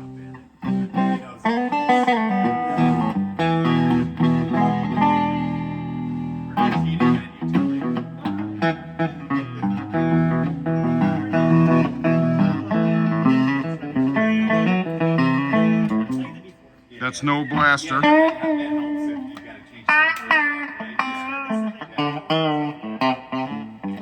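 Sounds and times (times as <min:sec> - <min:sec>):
electric guitar notes and chords: 0:00.0 - 0:24.0.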